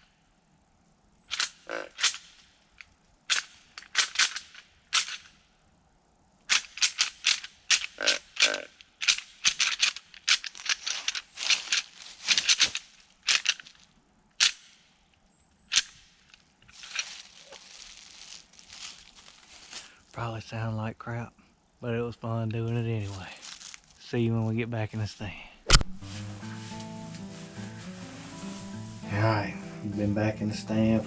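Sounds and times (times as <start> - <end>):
rattling bag clacking: 6.5 - 13.8, 16.7 - 19.9.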